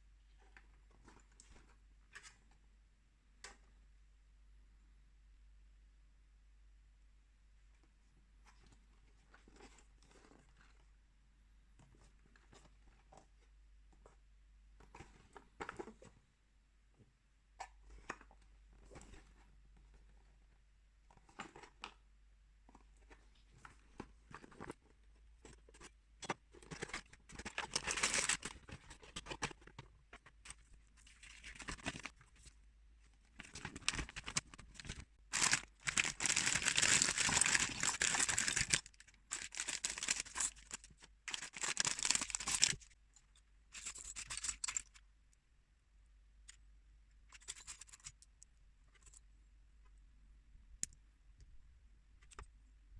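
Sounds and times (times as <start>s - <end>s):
plastic bags crinkling and tearing: 27.3s - 28.8s, 33.4s - 42.9s.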